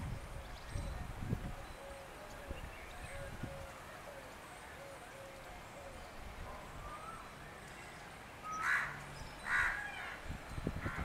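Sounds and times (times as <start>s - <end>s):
faint bird chirping: 0.0s - 10.2s
loud harsh bird calls: 8.4s - 10.2s.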